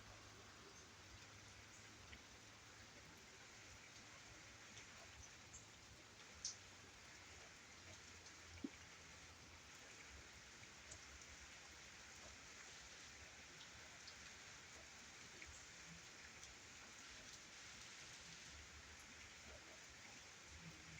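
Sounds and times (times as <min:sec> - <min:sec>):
faint steady rain: 0:00.0 - 0:20.9
raindrop ticks: 0:06.2 - 0:06.7.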